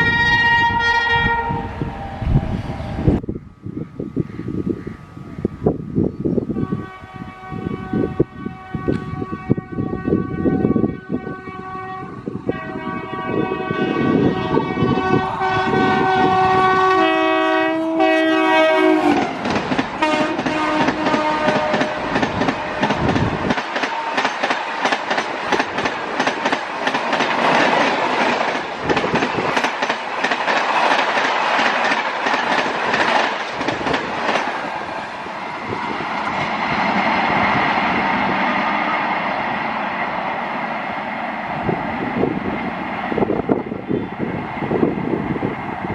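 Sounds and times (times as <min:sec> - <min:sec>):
train horn: 0:00.0 - 0:03.0, 0:06.5 - 0:19.4, 0:20.0 - 0:25.2
train rushing rumble: 0:00.0 - 0:45.9
train wheel clatter: 0:19.0 - 0:38.6.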